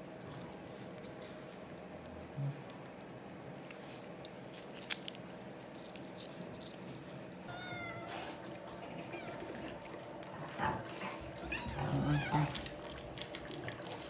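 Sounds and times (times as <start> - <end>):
cat meowing: 7.5 - 8.2, 11.4 - 12.6.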